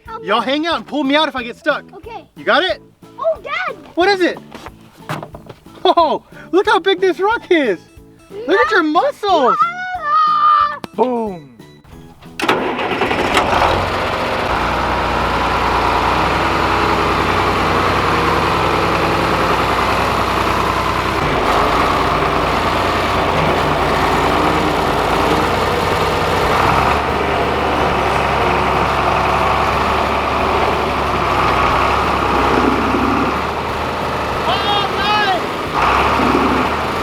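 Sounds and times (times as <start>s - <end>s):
tractor engine rumbling: 12.1s - 37.0s.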